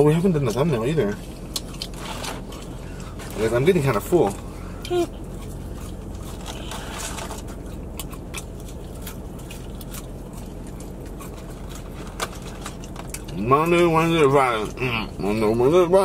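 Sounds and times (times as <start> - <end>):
steady low hum: 0.0 - 16.0
person chewing: 1.2 - 15.5.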